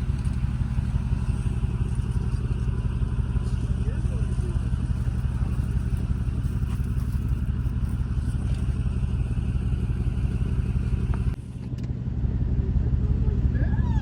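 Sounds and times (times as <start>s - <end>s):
vehicle engine droning: 0.0s - 14.0s.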